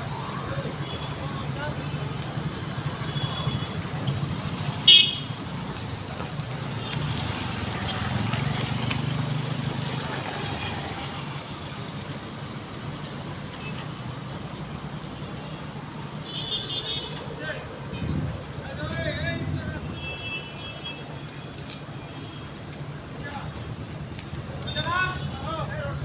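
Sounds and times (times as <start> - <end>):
vehicle horn toot: 3.1 - 3.8, 4.9 - 5.4, 16.2 - 17.2.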